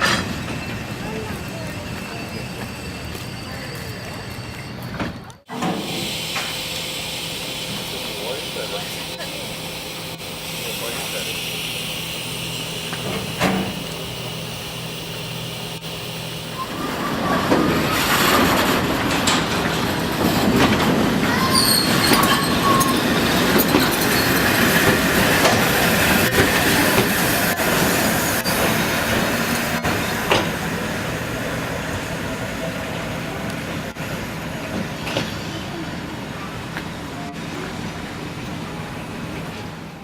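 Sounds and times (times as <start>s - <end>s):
high wheel squeal: 0.0s - 20.5s, 21.2s - 30.8s
rail clicks: 0.0s - 34.0s
train wheels rumbling on track: 0.0s - 40.0s
steady hum: 5.6s - 19.2s.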